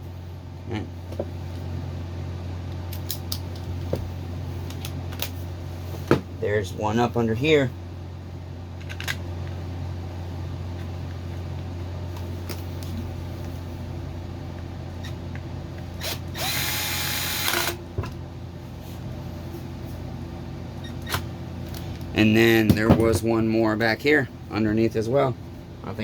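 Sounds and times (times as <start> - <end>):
steady low hum: 0.0 - 26.0
electric screwdriver running: 16.0 - 17.8.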